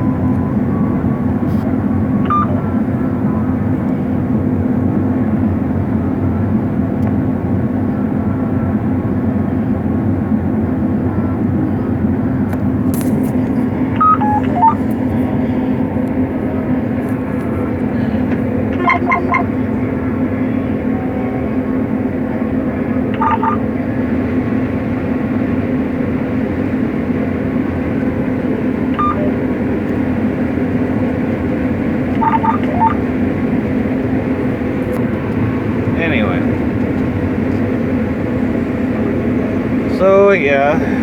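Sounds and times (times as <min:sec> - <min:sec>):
combine harvester humming: 0:00.0 - 0:41.0
electronic beeps: 0:02.2 - 0:02.8, 0:13.9 - 0:14.9, 0:18.8 - 0:19.6, 0:23.2 - 0:23.6, 0:29.0 - 0:29.5, 0:32.2 - 0:33.1
electronic chirp of falling tones: 0:14.0 - 0:14.8, 0:18.8 - 0:19.5, 0:23.2 - 0:23.6, 0:29.0 - 0:29.4, 0:32.2 - 0:33.0.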